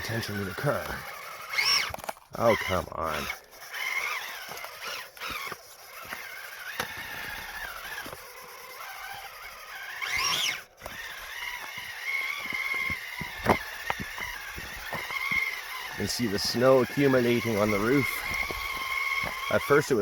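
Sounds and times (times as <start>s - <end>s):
electric motor whining: 0.0s - 20.0s
sharp knocks on rocks: 12.4s - 15.5s.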